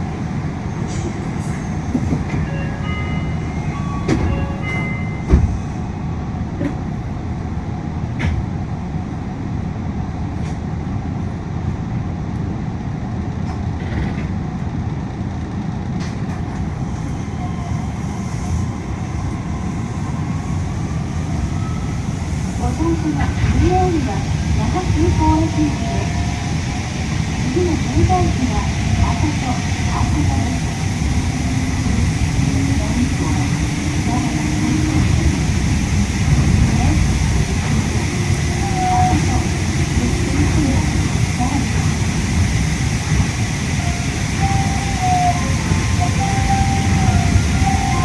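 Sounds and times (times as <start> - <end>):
monorail running gear rumble: 13.0 - 48.0.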